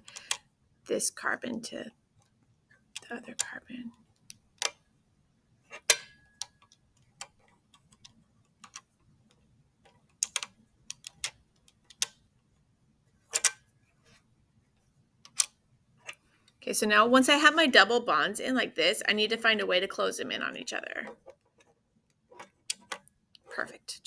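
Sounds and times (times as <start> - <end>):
model pieces clicking together: 9.8 - 12.2, 13.3 - 13.6, 15.3 - 16.2.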